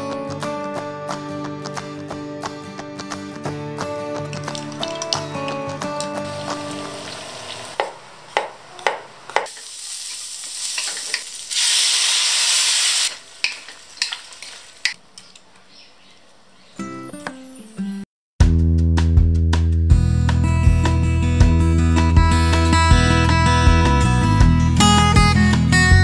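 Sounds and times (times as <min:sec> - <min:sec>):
background music: 0:00.0 - 0:07.5, 0:16.8 - 0:26.0
utensil clinks: 0:04.3 - 0:06.2
sauce sizzling in a hot wok: 0:06.3 - 0:07.8, 0:09.5 - 0:15.0.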